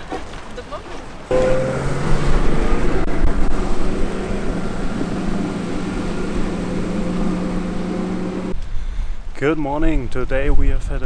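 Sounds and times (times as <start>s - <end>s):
boat engine running: 1.3s - 8.5s.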